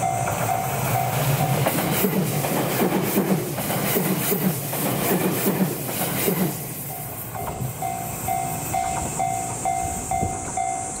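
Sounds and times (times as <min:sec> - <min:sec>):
level crossing warning bell: 0:00.0 - 0:01.7, 0:06.8 - 0:11.0
train wheels clattering over joints: 0:00.2 - 0:07.8
steady high hiss: 0:05.7 - 0:11.0.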